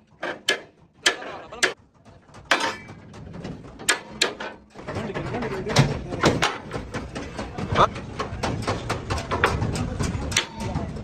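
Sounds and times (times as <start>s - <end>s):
sharp knocks and clicks: 0.0s - 11.0s.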